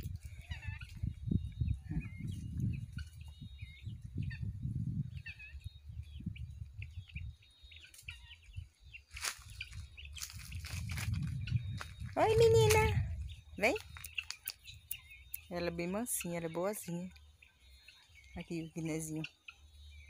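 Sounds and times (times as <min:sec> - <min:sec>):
small birds chirping: 0:00.0 - 0:20.0
low rumble: 0:09.8 - 0:14.0.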